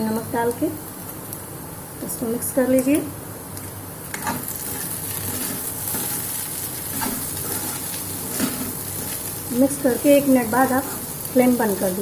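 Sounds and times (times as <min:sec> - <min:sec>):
okra sizzling in oil: 0:00.0 - 0:12.0
spatula scraping a pan: 0:04.1 - 0:09.3.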